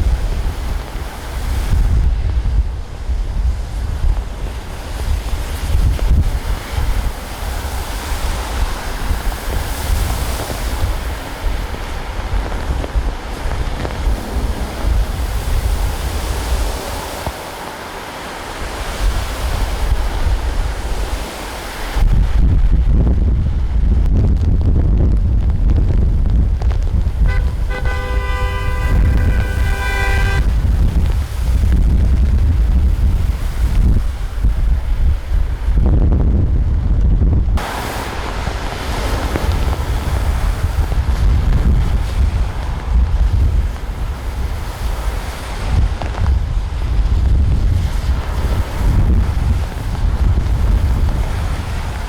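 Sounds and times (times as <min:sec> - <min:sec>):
road traffic: 0:00.0 - 0:21.8, 0:27.0 - 0:31.6, 0:37.6 - 0:46.3
steady rushing noise: 0:00.0 - 0:52.0
wind rumble on microphone: 0:00.0 - 0:52.0
vehicle horn: 0:27.2 - 0:30.7.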